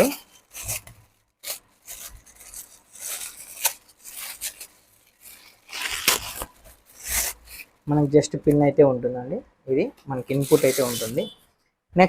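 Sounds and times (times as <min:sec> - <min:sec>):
hands rustling and scraping objects: 0:00.0 - 0:08.0, 0:10.3 - 0:11.2.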